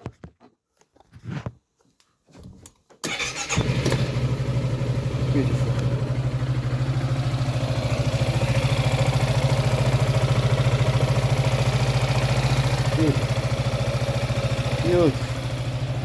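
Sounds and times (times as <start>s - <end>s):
scooter engine idling: 3.1s - 16.0s.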